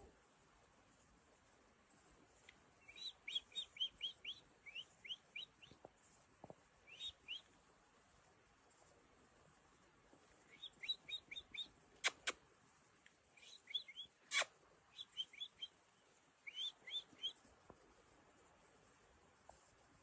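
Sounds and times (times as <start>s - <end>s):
steady high hiss: 0.0s - 20.0s
bird chirping: 1.4s - 19.0s
sharp clicks: 12.0s - 12.4s.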